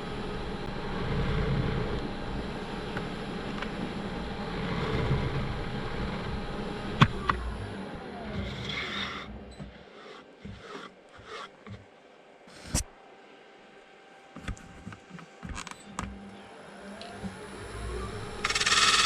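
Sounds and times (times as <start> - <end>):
wood lathe cutting: 8.3 - 11.6, 18.1 - 19.0.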